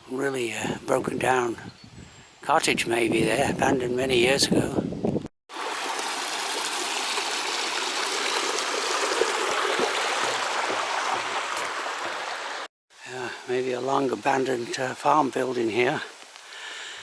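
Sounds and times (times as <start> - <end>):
small stream running: 5.5 - 17.0.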